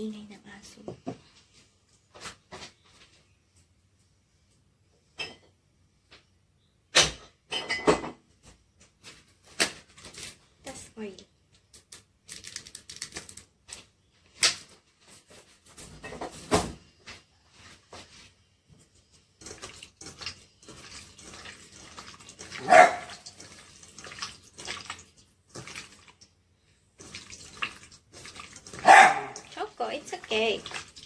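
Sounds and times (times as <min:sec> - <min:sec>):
meat mixed by hand in bowl: 0:17.5 - 0:26.2, 0:27.0 - 0:31.0
dog barking: 0:22.6 - 0:23.2, 0:28.8 - 0:29.5.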